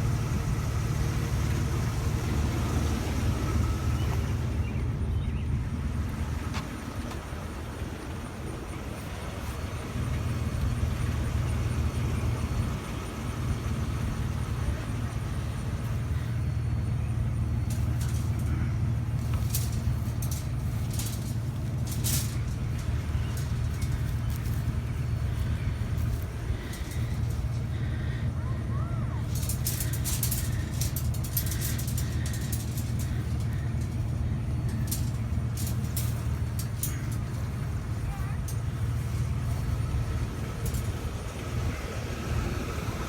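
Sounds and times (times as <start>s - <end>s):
vehicle engine idling: 0.0s - 43.0s
sharp clicks: 17.6s - 28.2s, 29.2s - 37.6s.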